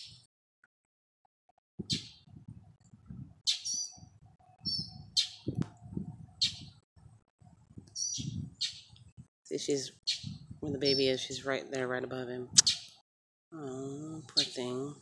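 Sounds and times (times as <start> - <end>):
small bird high calls: 1.9 - 2.3, 3.4 - 5.5, 6.4 - 6.8, 8.0 - 9.0, 10.0 - 11.2.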